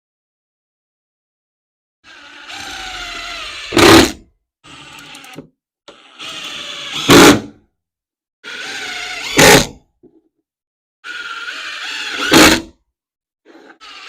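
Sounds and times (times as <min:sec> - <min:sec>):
power driver motor whining: 0:02.5 - 0:07.2.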